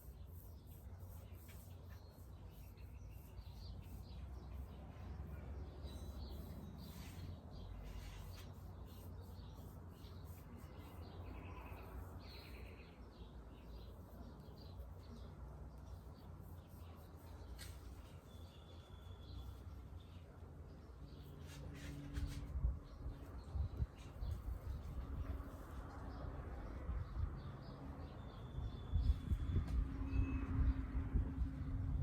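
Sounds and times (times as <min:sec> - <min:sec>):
small birds chirping: 0:00.0 - 0:22.1.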